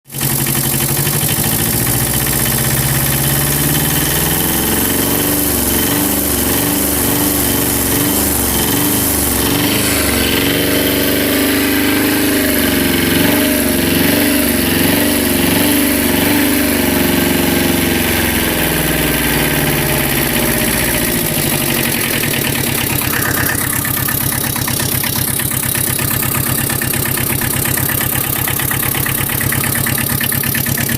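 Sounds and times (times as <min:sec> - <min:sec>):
engine revving and idling: 0:00.1 - 0:30.9.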